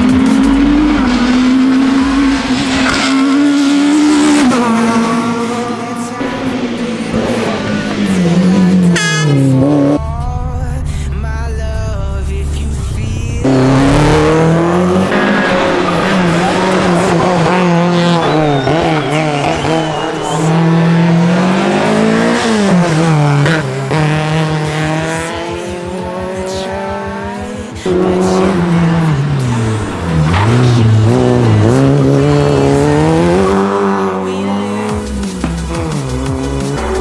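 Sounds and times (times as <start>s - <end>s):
rally car engines revving: 0.0s - 11.1s, 12.6s - 37.0s
tyres squealing: 15.1s - 22.8s.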